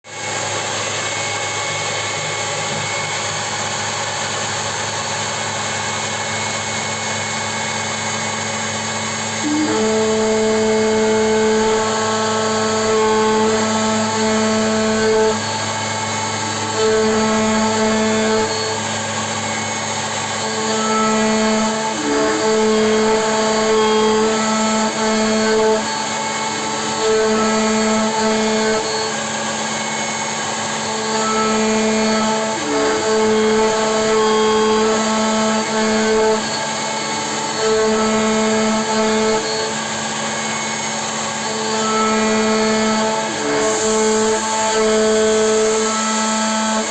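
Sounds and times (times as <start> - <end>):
machine running noise: 0.1 - 46.9
milling machine whine: 0.1 - 46.9.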